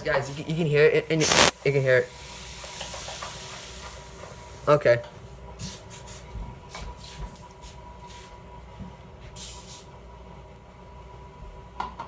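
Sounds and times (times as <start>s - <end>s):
aerosol spray squirts: 1.2s - 1.5s.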